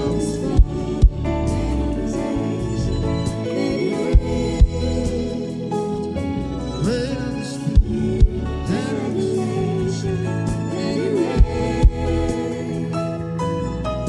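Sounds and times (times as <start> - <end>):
sustained chords: 0.0 - 14.0
deep thumps: 0.6 - 2.0, 4.2 - 5.2, 7.8 - 8.5, 11.4 - 12.4
person singing wordless runs: 6.8 - 12.9.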